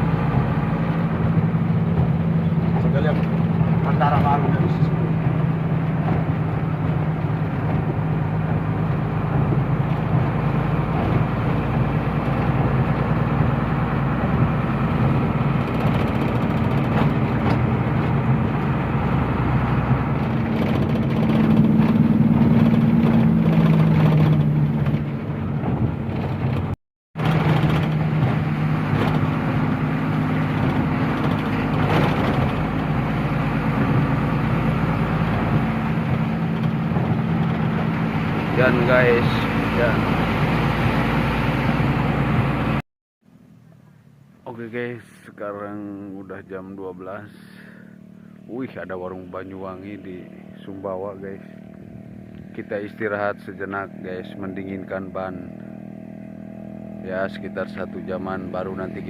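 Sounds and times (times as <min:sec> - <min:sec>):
truck engine running: 0:00.0 - 0:42.8
road noise: 0:00.0 - 0:59.0.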